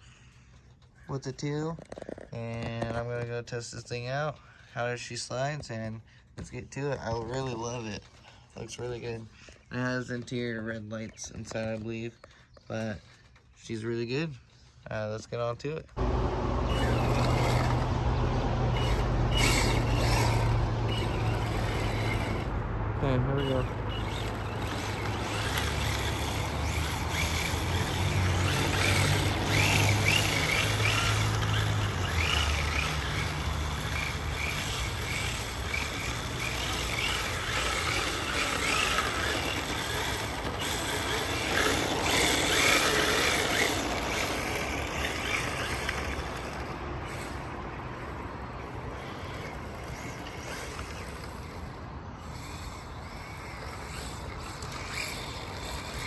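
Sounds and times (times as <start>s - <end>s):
plastic tyres sliding and scrubbing: 16.0s - 22.6s, 23.4s - 47.4s
electric motor whining: 16.0s - 56.0s.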